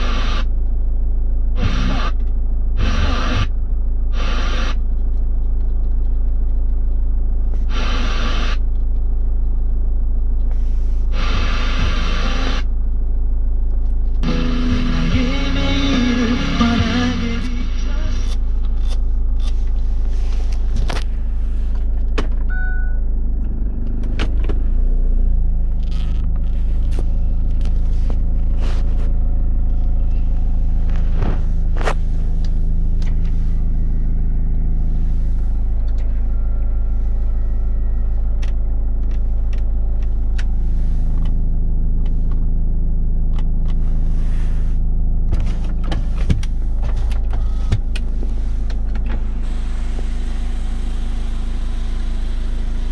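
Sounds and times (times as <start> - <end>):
suv engine running: 0.0 - 52.9.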